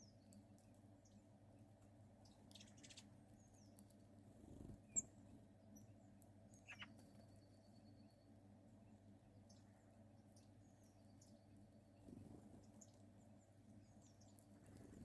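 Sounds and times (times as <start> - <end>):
faint high bird chirps: 2.2 - 3.9, 4.5 - 8.4, 9.4 - 15.0.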